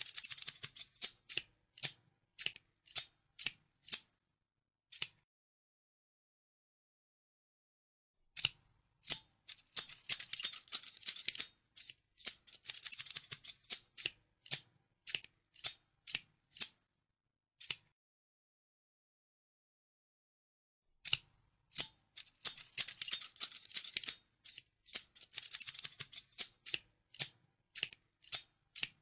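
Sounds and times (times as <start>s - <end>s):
scissors snipping: 0.0s - 4.2s, 4.9s - 5.2s, 8.4s - 16.8s, 17.6s - 17.9s, 21.0s - 29.0s.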